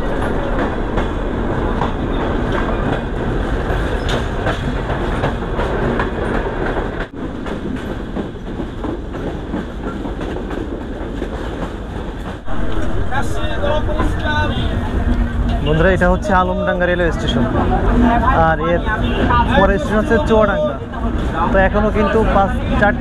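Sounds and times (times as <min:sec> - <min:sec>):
wheels clacking over rail joints: 0:00.0 - 0:16.1
train rumble: 0:00.0 - 0:23.0.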